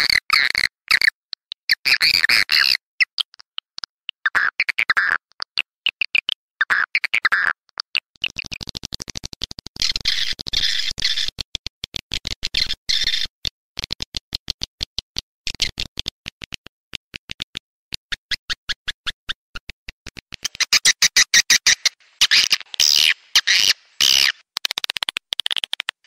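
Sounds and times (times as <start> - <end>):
rapid sharp clicks: 19.6 - 26.0
high chirping twitters: 20.4 - 26.0.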